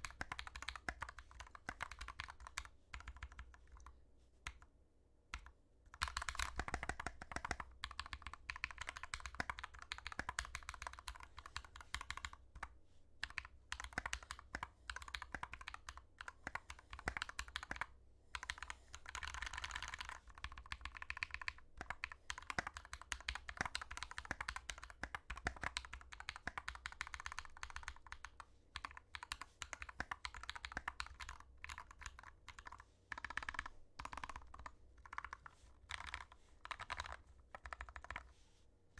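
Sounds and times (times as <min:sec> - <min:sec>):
mechanical keyboard typing: 0:00.0 - 0:03.9, 0:05.4 - 0:38.3.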